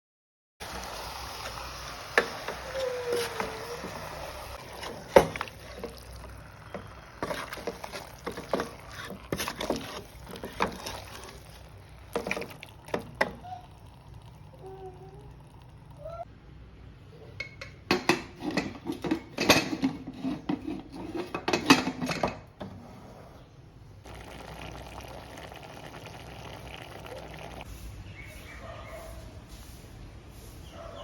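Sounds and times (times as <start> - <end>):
food sizzling in a pan: 0.6 - 12.4
spatula scraping a pan: 2.2 - 12.5, 18.3 - 23.3.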